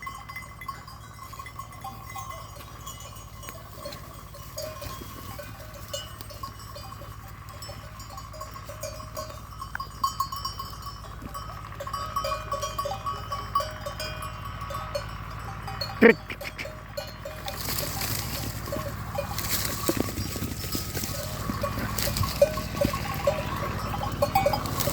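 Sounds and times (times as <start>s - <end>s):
sheep bells clinking: 0.0s - 24.9s.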